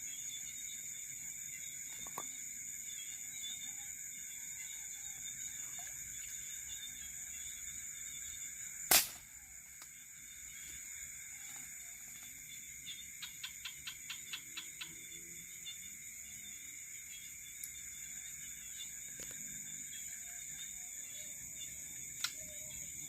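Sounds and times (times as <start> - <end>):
crickets and insects chirping: 0.0 - 23.0
air rifle shot: 8.9 - 9.3
faint ticks: 22.2 - 22.4.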